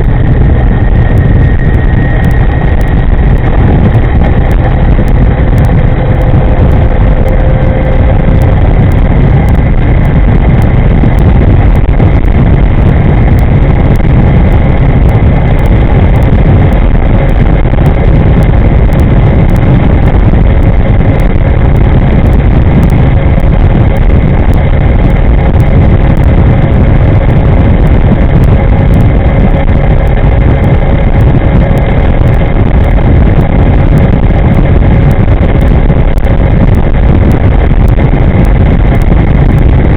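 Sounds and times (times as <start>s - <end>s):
faint electric whine: 0.0s - 39.9s
wind rush on microphone: 0.0s - 39.9s.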